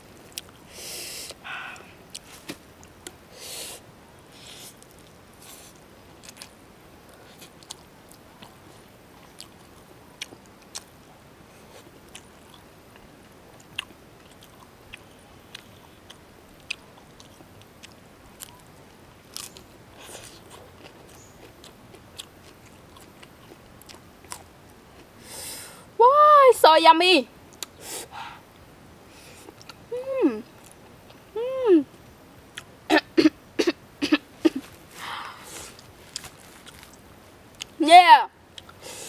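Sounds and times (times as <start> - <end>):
person chewing noodles: 4.4 - 10.9, 11.6 - 18.7, 19.3 - 25.1, 35.5 - 37.0
crisp lettuce crunching: 34.6 - 37.0.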